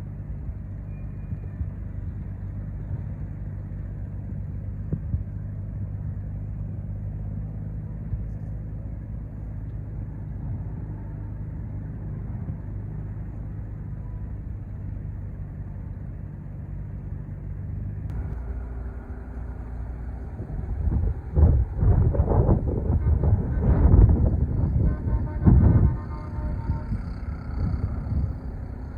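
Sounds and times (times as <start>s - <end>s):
diesel engine humming: 0.0s - 28.9s
gusty low rumbling: 0.2s - 28.9s.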